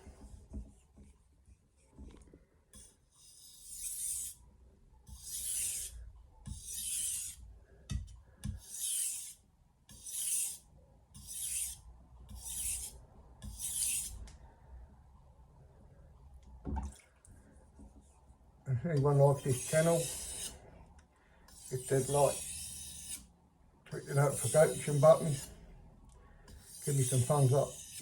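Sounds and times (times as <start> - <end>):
knife rasping on whetstone: 2.8 - 4.4, 5.1 - 7.4, 8.6 - 10.6, 11.2 - 14.2, 19.1 - 20.6, 21.5 - 23.3, 24.0 - 25.6, 26.5 - 28.0.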